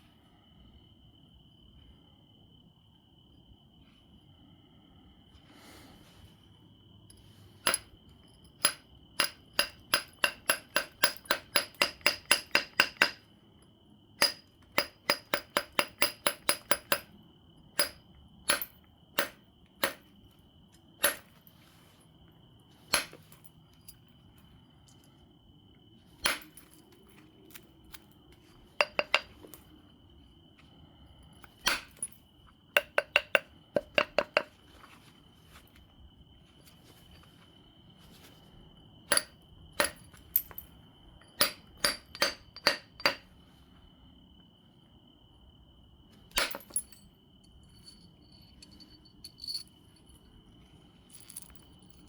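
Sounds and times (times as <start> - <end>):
glassy stone knapping taps: 28.8 - 29.3.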